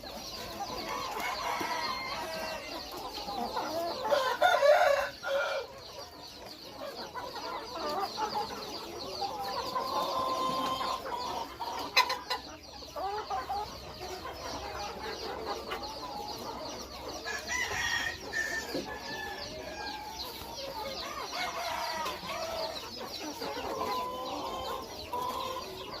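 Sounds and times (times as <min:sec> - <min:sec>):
chickens clucking: 0:00.0 - 0:26.0
rooster crowing: 0:04.1 - 0:05.7.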